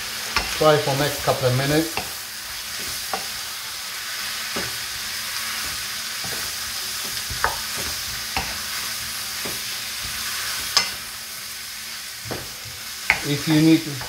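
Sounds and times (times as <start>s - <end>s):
meat sizzling in a frying pan: 0.0s - 14.0s
spoon knocking against pan: 7.0s - 8.6s, 13.1s - 13.3s.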